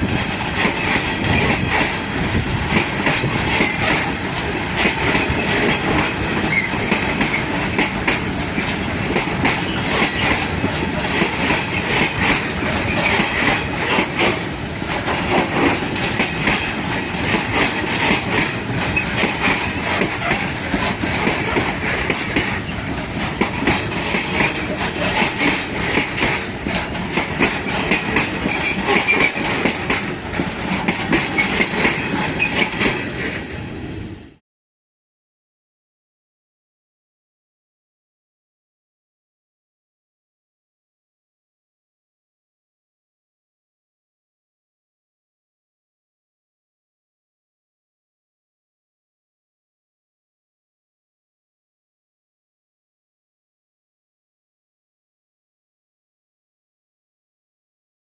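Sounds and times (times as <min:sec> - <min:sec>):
train wheels clattering over rail joints: 0:00.0 - 0:33.5.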